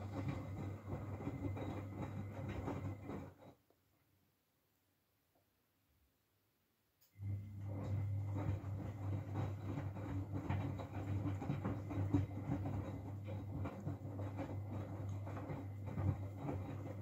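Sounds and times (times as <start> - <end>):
wet laundry tumbling in drum: 0.0 - 3.5, 7.5 - 17.0
washing machine low hum: 0.0 - 3.6, 7.1 - 17.0.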